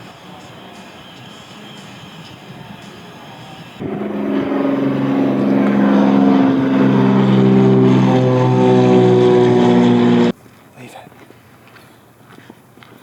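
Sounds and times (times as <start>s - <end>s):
car engine and exhaust droning: 3.8s - 10.3s.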